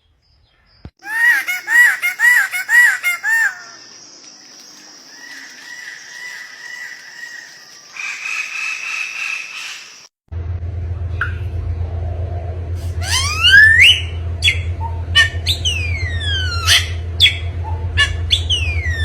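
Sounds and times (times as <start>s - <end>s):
bird calling: 0.6s - 10.1s, 12.8s - 19.0s.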